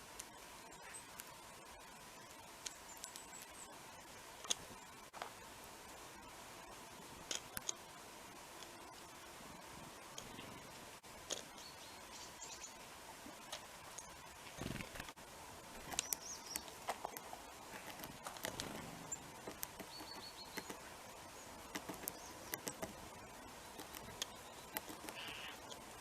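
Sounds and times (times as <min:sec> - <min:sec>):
small birds calling: 0:10.1 - 0:15.1, 0:15.8 - 0:26.0.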